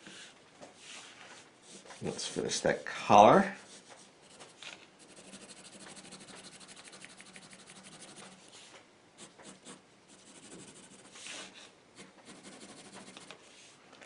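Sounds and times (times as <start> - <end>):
pencil scratching on paper: 3.6 - 8.6, 9.2 - 13.4.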